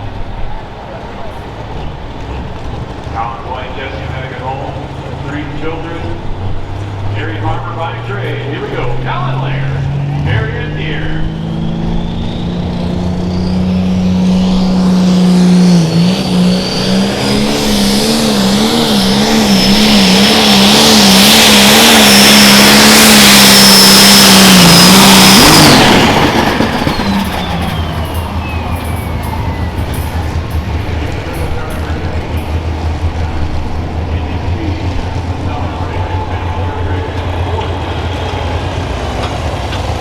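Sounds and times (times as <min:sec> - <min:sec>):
diesel engine at full throttle: 0:00.0 - 0:40.0
turbo whistle: 0:11.4 - 0:30.4.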